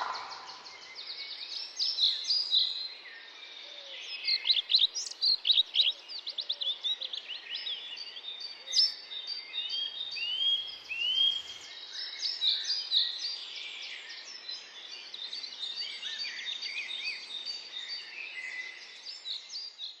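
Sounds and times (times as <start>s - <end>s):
whistled bird notes: 0.0s - 2.5s, 9.6s - 11.7s
songbirds chirping and trilling: 0.0s - 20.0s.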